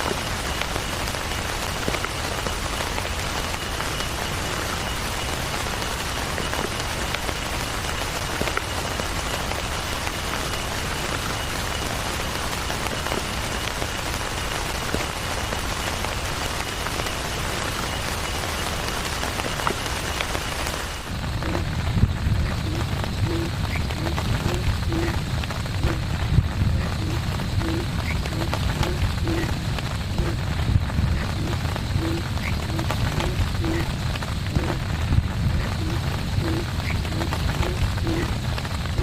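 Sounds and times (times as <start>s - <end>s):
heavy rain hissing: 0.0s - 39.0s
low rumble: 21.0s - 39.0s.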